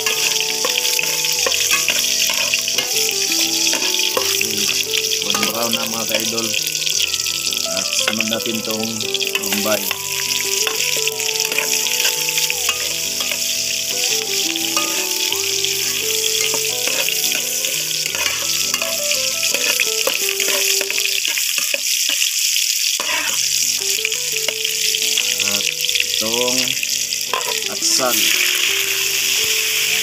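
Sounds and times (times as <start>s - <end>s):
metal ladle stirring in wok: 0.0s - 5.5s, 9.2s - 13.8s, 14.8s - 22.3s, 23.0s - 23.8s
onions sizzling in hot oil: 0.0s - 30.0s.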